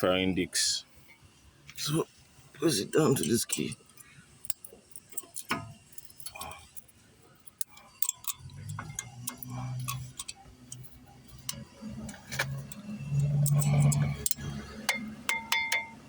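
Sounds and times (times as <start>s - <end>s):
metal clicks and taps: 3.5s - 16.0s.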